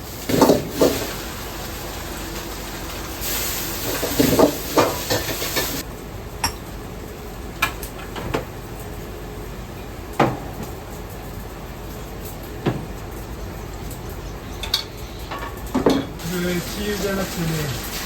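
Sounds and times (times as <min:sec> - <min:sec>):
hiss: 0:00.0 - 0:05.8, 0:16.2 - 0:18.0
steady kitchen background: 0:00.0 - 0:18.0
utensils and pots clattering: 0:00.2 - 0:05.8, 0:12.2 - 0:18.0.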